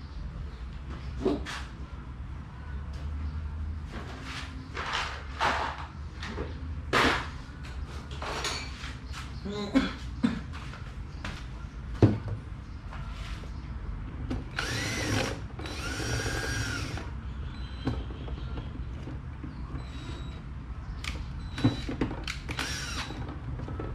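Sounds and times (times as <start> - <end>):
small power drill whirring: 14.5 - 17.1, 22.5 - 23.2.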